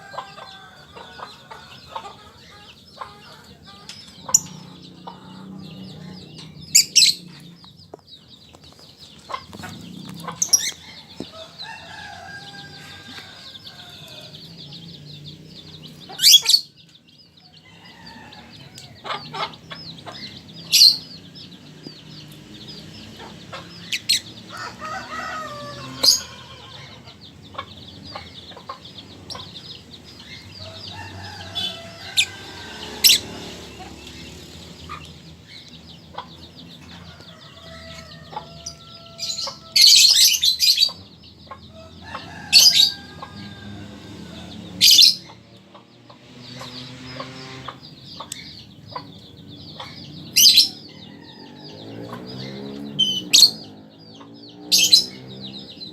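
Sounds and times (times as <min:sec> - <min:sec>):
lovebird chirping: 0:01.0 - 0:17.4.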